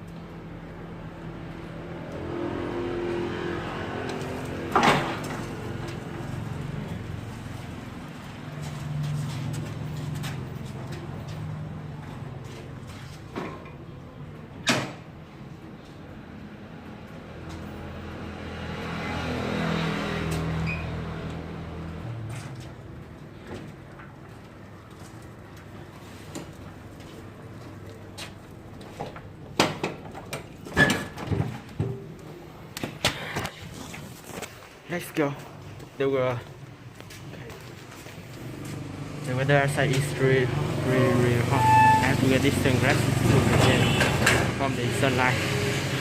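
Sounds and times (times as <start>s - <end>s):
motor vehicle passing by: 1.1s - 13.2s, 17.0s - 22.8s, 37.9s - 46.0s.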